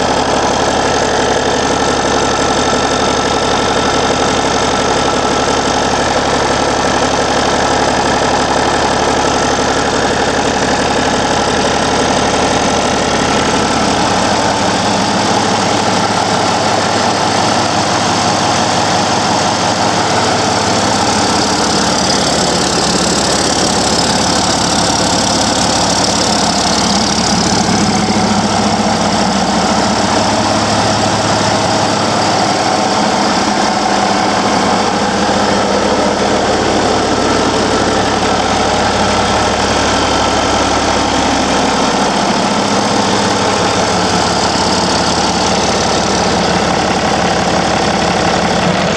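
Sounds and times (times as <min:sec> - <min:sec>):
diesel truck engine running: 0:00.0 - 0:48.9.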